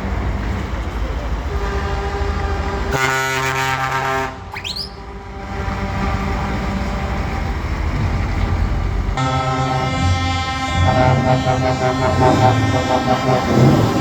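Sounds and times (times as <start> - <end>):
diesel truck engine rumble: 0.0 - 14.0
truck air horn blast: 1.5 - 7.6, 9.2 - 14.0
short rising whistle: 4.5 - 5.0.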